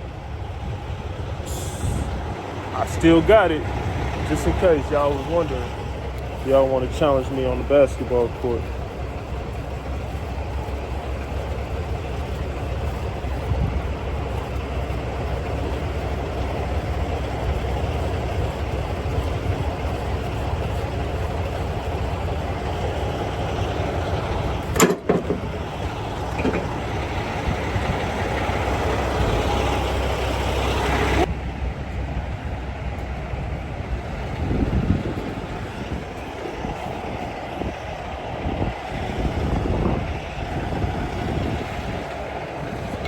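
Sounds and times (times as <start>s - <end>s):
heavy vehicle engine running: 0.0s - 43.0s
knocks and clatter: 24.6s - 25.7s, 26.3s - 27.9s.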